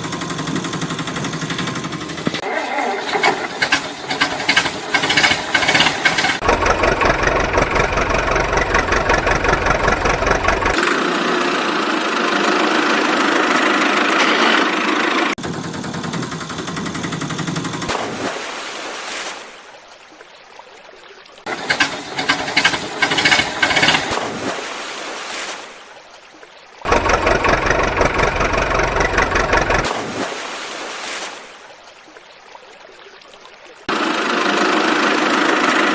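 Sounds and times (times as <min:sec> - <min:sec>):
vehicle engines running: 0:00.0 - 0:18.2, 0:21.5 - 0:24.5, 0:26.9 - 0:30.2, 0:33.9 - 0:35.9.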